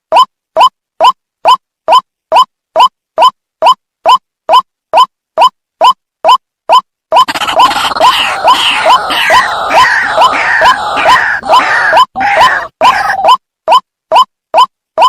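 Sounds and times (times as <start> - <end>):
harsh screeching chorus: 7.3 - 13.3.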